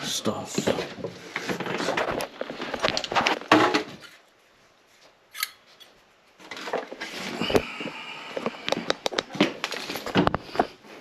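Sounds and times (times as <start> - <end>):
tools rubbing and clinking: 5.3 - 6.0.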